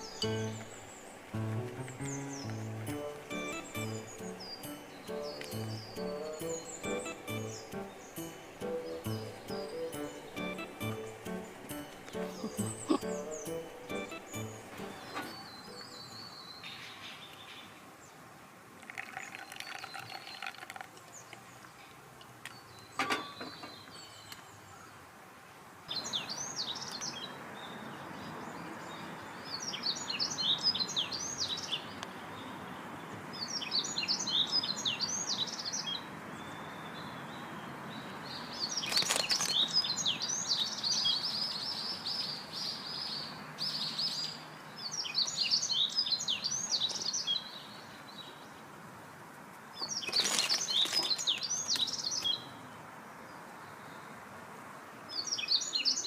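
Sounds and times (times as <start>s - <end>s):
background hiss: 0.0s - 18.8s
songbirds chirping: 0.0s - 56.0s.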